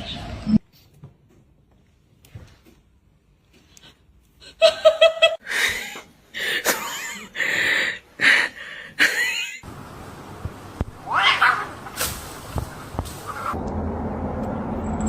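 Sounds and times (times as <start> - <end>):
cats meowing and yowling: 11.0 - 11.8.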